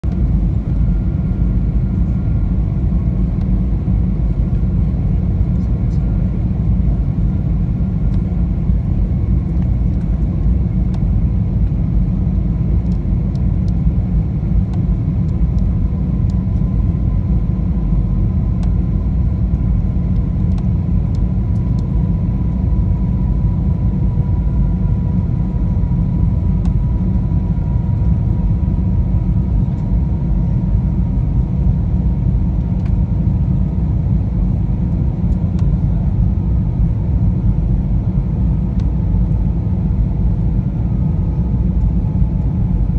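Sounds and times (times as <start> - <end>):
airliner engine rumble: 0.0 - 42.9
faint steady whine: 0.0 - 42.9.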